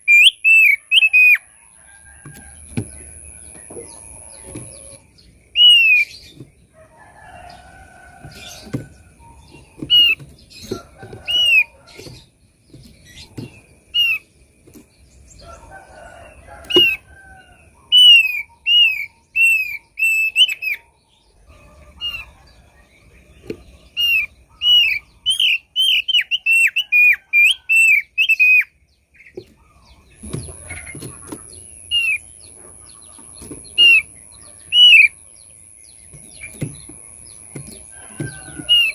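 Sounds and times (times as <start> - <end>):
bird whistling calls: 0.0 - 1.4, 4.8 - 6.2, 24.0 - 28.7, 34.7 - 35.1.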